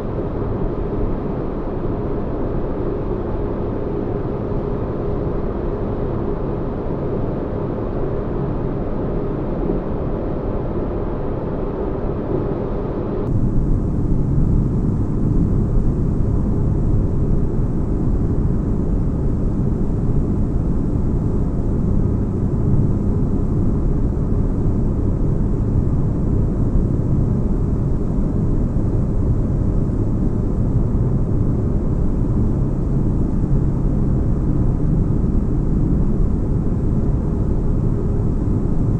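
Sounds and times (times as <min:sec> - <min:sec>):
deep rumbling engine hum: 0:12.1 - 0:38.9.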